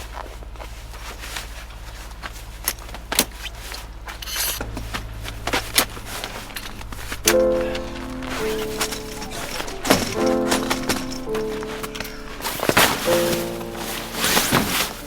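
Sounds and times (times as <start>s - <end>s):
camp gear clicking and knocking: 2.2s - 15.0s
music: 6.5s - 15.0s.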